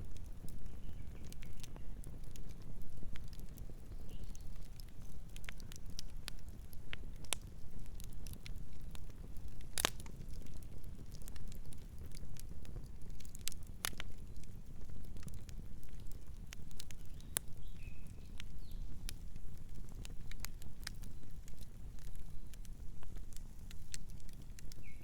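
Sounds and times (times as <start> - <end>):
campfire crackling: 0.0 - 25.0.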